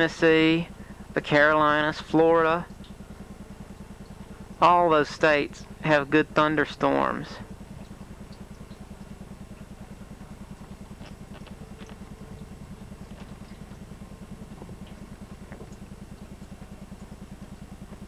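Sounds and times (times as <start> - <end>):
low pulsing mechanical hum: 0.0 - 18.0
faint clicks: 7.8 - 18.0.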